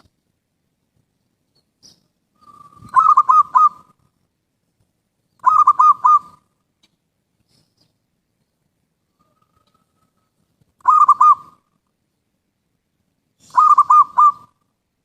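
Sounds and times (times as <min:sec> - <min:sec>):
dove cooing: 0:02.4 - 0:04.0, 0:05.4 - 0:06.5, 0:09.2 - 0:11.8, 0:13.4 - 0:14.6.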